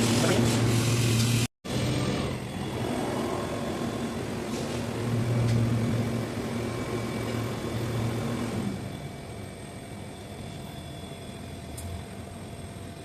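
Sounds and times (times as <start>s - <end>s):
air compressor running: 0.0s - 9.8s.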